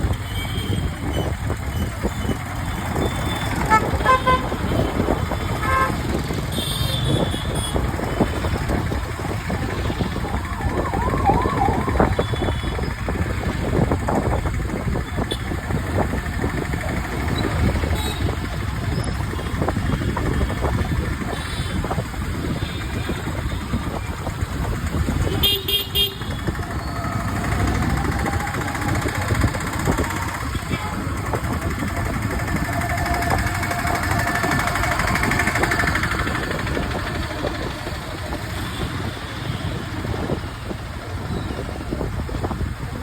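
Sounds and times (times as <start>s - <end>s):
street traffic: 0.0s - 43.0s
wind noise: 0.0s - 43.0s
vehicle horns honking: 3.0s - 7.8s, 25.2s - 27.0s.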